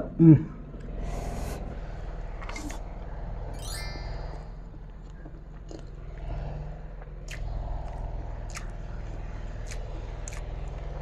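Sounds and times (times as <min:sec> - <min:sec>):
steady low hum: 0:00.0 - 0:11.0
person chewing: 0:05.0 - 0:11.0.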